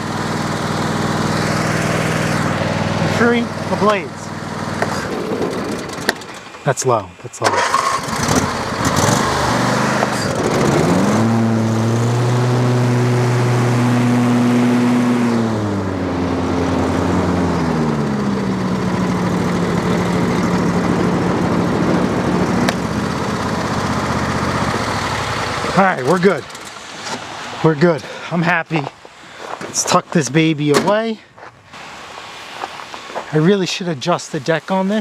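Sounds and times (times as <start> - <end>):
lawn tractor engine revving: 0.0 - 6.8, 7.4 - 27.7.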